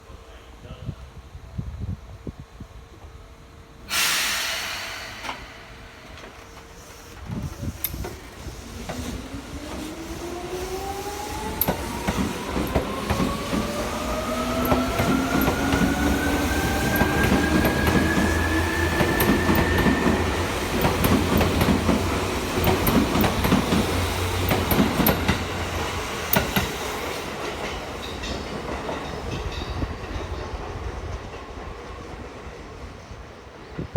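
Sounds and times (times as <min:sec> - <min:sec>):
electric train motor whine: 0:03.0 - 0:27.0
wheels clattering over rail joints: 0:11.2 - 0:30.3.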